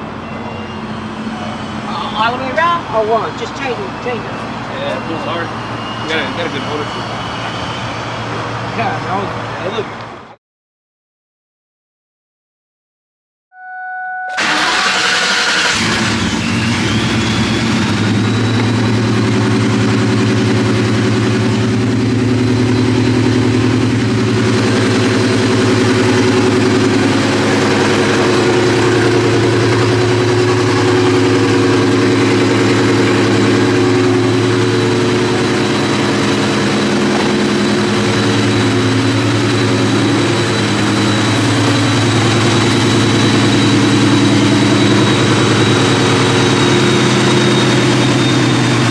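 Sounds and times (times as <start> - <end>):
car engine starting and idling: 14.3 - 48.9
supercharger whine: 14.3 - 48.9.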